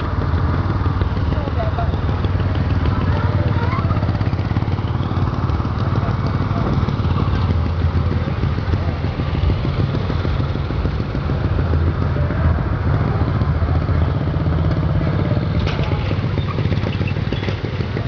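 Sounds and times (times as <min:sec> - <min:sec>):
small tractor engine running hard: 0:00.0 - 0:18.0.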